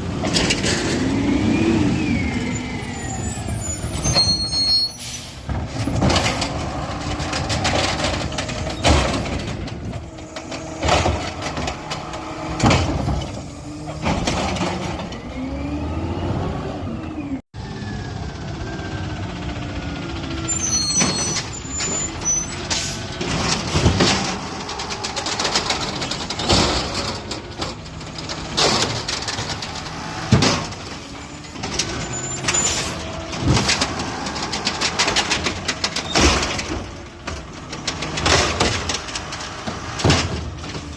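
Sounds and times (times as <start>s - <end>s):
diesel engines revving: 0.0s - 40.9s
air brake hisses: 4.9s - 5.5s
bangs and clanks: 5.3s - 15.2s, 21.0s - 40.9s.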